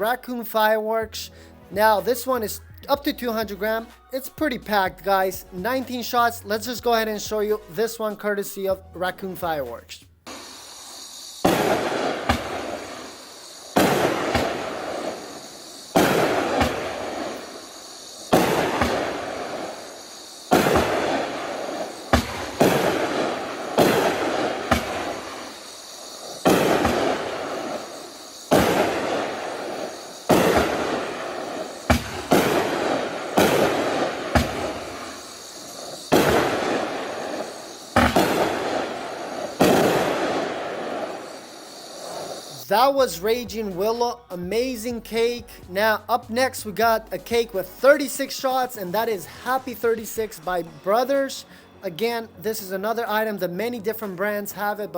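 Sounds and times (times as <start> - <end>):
crackle after fireworks: 9.7 - 44.4
fireworks firing shots: 10.3 - 43.4.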